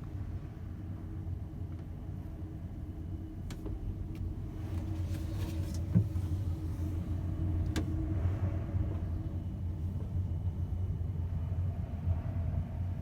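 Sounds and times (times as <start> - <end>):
constant hum: 0.0 - 13.0.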